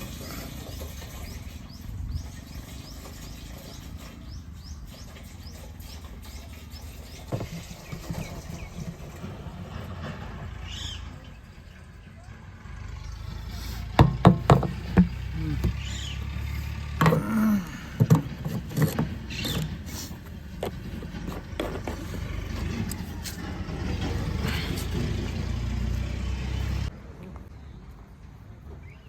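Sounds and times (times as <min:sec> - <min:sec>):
vehicle engine droning: 0:00.0 - 0:27.0
knocks and clatter: 0:13.9 - 0:16.0, 0:18.0 - 0:24.4.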